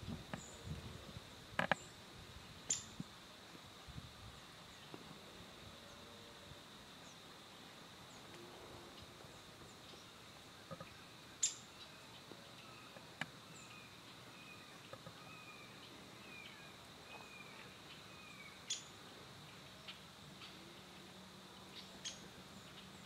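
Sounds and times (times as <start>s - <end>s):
bird chirping calls: 9.0s - 21.0s, 21.6s - 23.0s.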